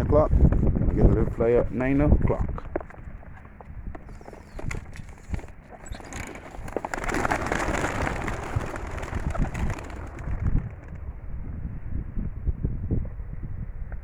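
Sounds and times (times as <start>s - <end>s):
pigeon wings flapping: 2.6s - 11.4s.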